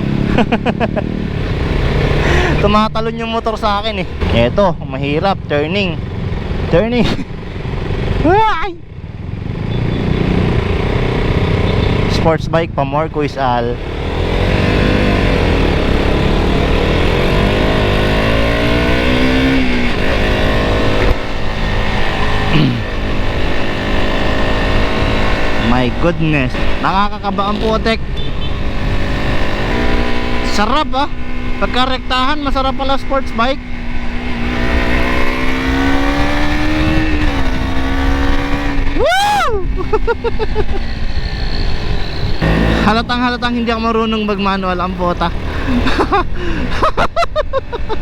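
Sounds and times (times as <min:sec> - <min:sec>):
motorcycle engine accelerating: 0:00.0 - 0:48.0
rider whooping: 0:38.1 - 0:43.2.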